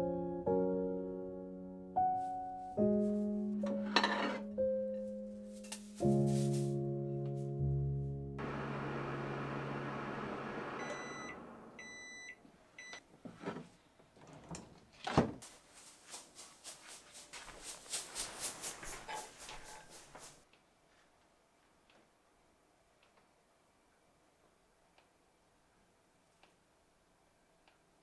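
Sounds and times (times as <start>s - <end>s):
microwave oven humming: 8.4s - 13.0s
microwave beeps: 9.2s - 13.0s.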